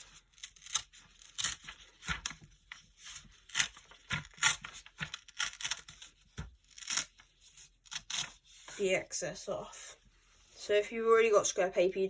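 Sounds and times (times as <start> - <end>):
paper tearing by hand: 0.0 - 2.3, 3.1 - 7.2, 7.8 - 8.4.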